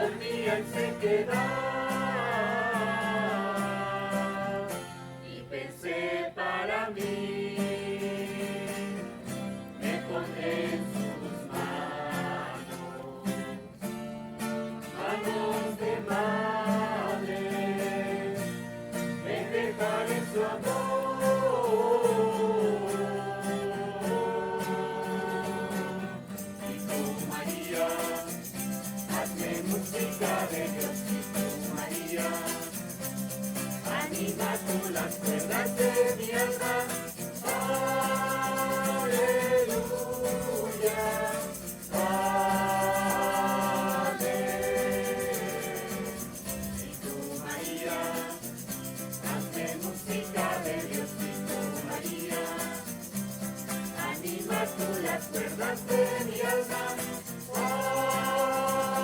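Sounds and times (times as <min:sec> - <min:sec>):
voices singing a hymn: 0:00.0 - 0:59.0
bright shimmering rattle: 0:26.3 - 0:59.0.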